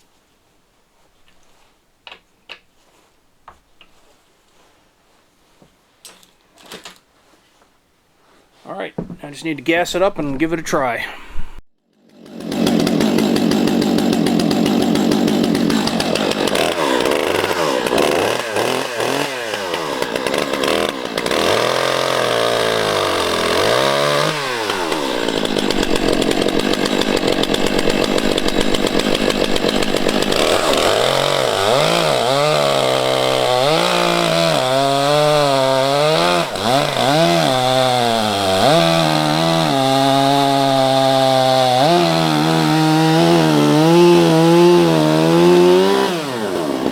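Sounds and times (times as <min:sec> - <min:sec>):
chainsaw engine revving: 0:12.0 - 0:46.9.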